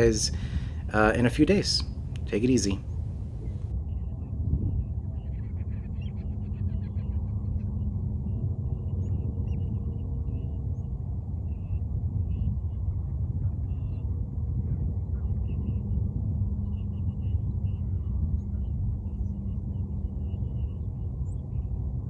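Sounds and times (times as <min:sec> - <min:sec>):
birds chirping: 0:00.0 - 0:03.6
steady low rumble: 0:00.0 - 0:05.8.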